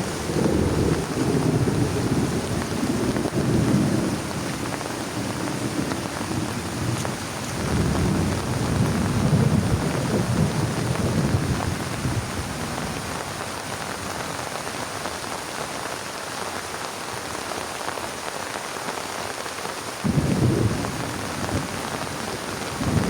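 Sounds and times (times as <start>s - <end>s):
thunder rumbling: 0.0s - 13.2s, 20.0s - 23.0s
heavy rain hissing: 0.0s - 23.0s.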